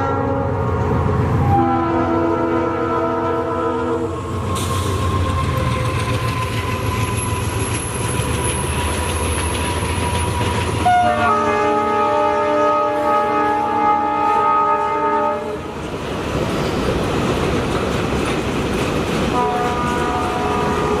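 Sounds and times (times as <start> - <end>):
locomotive horn: 0.0 - 0.8, 1.4 - 4.2, 10.8 - 15.8, 19.3 - 21.0
train rumbling past: 0.0 - 21.0
faint high wheel squeal: 4.3 - 10.8.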